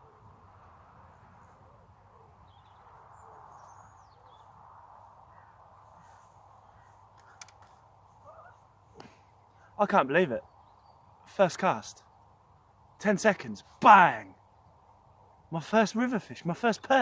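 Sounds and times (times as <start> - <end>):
faint bird calls: 5.2 - 9.8.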